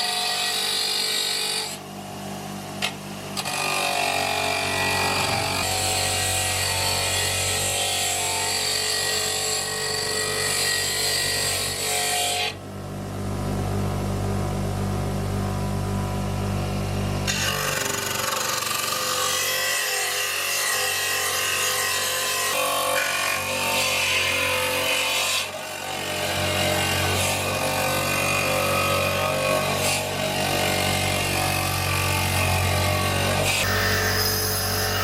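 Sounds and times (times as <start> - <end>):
power tool rasping on metal: 17.2 - 35.0.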